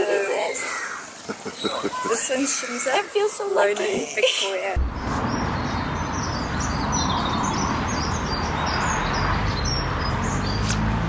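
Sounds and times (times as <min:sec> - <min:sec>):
small birds chirping: 0:00.1 - 0:03.0, 0:04.8 - 0:10.9
steady rushing noise: 0:04.8 - 0:09.1.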